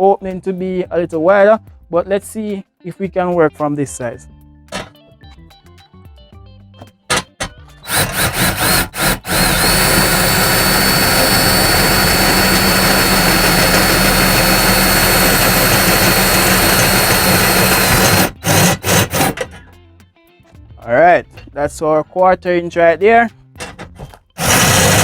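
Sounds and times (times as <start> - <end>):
power drill drilling into metal: 4.7 - 4.9, 7.1 - 19.7, 23.6 - 25.0.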